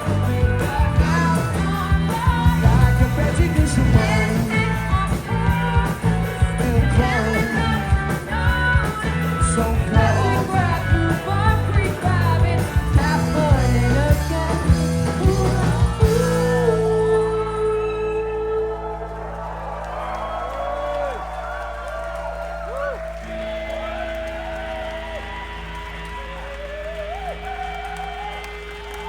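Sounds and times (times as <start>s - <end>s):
live rock band playing: 0.0s - 18.0s
guitars: 0.0s - 19.5s
drums: 0.0s - 29.0s.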